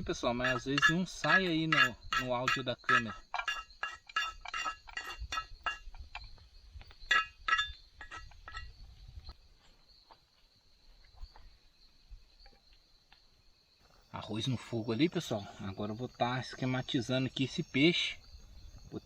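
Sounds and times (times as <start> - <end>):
high insect drone: 0.0 - 19.0
metal cookware clinking: 0.1 - 6.0, 7.1 - 8.7.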